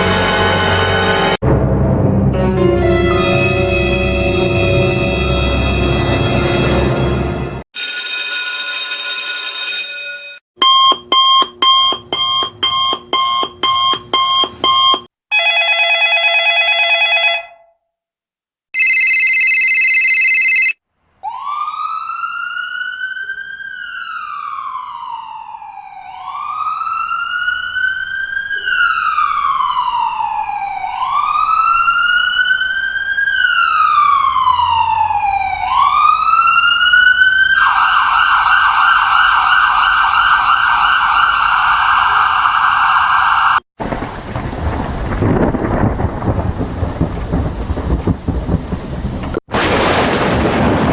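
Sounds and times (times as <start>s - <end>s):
emergency vehicle siren: 18.8s - 45.8s.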